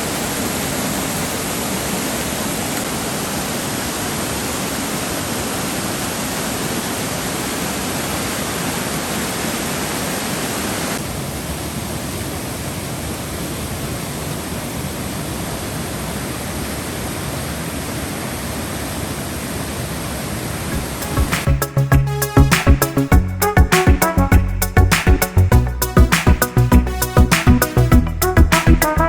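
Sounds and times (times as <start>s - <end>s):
water rushing: 0.0s - 23.1s.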